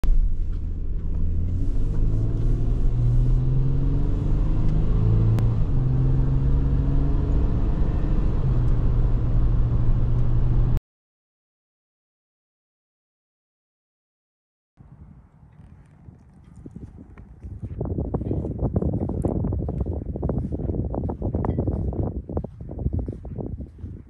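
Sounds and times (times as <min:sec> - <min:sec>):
car engine accelerating: 0:00.0 - 0:10.8.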